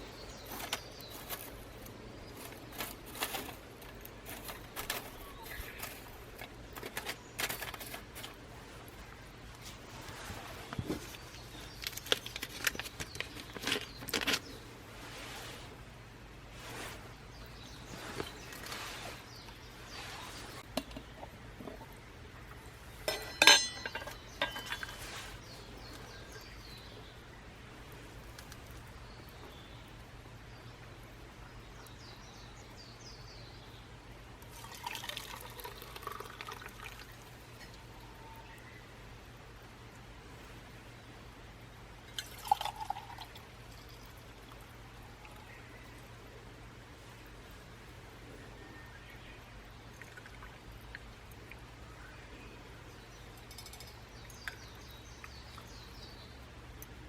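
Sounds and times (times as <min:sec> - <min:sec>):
utensils clinking and tapping: 0:23.0 - 0:25.2, 0:53.4 - 0:54.6.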